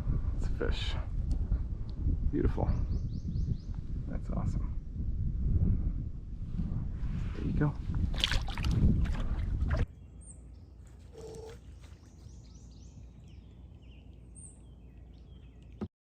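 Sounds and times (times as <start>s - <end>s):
wind rumbling on microphone: 0.0s - 10.3s, 11.0s - 15.9s
faint bird chirps: 9.9s - 15.9s.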